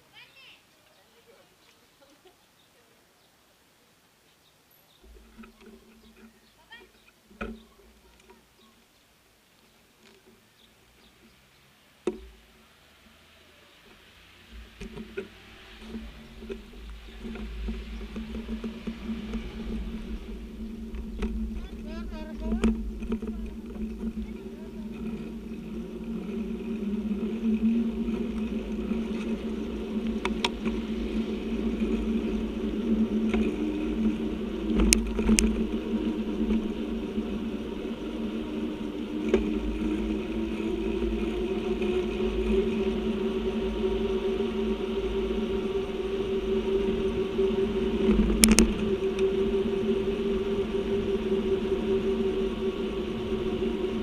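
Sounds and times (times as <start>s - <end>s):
bicycle rumbling: 4.9s - 54.0s
bicycle rattling clicks: 22.3s - 42.8s, 48.0s - 49.4s.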